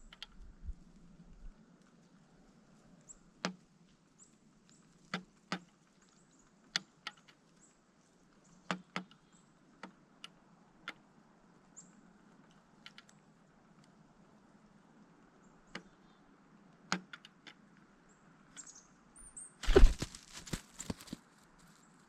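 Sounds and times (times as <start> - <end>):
woodpecker pecking: 19.6 - 21.2.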